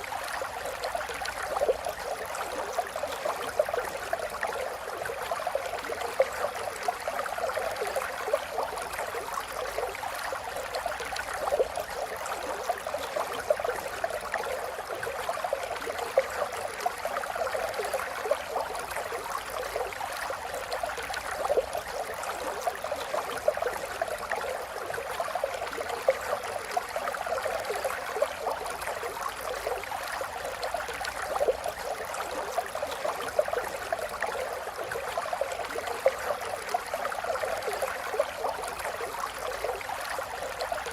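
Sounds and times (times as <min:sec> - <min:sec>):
stream babbling over stones: 0:00.0 - 0:40.9.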